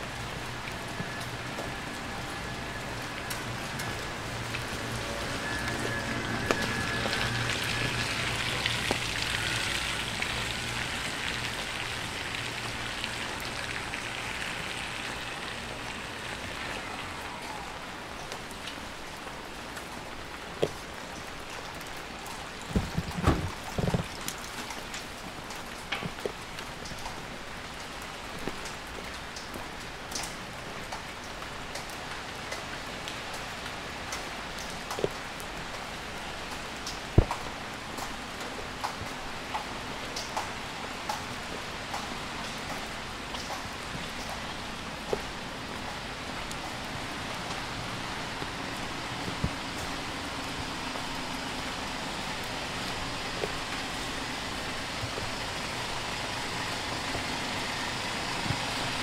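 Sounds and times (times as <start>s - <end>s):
dripping water: 0.0s - 59.0s
rain falling on a wet street: 0.0s - 59.0s
dull thumps: 22.7s - 24.1s.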